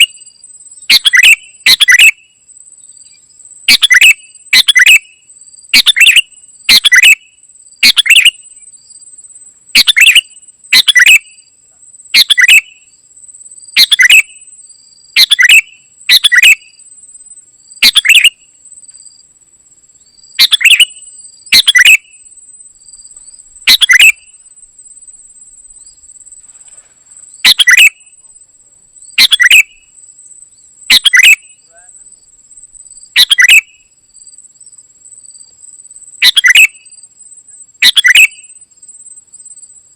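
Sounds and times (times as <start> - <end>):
bulbul calling: 0.0 - 0.2, 0.8 - 2.3, 2.9 - 8.6, 9.8 - 11.4, 12.2 - 12.9, 13.8 - 14.5, 15.2 - 16.8, 17.8 - 18.5, 20.1 - 22.3, 23.1 - 24.5, 26.7 - 28.4, 29.0 - 29.9, 30.5 - 32.1, 33.1 - 33.9, 36.2 - 37.0, 37.8 - 38.6
insect-like trill: 0.0 - 39.9.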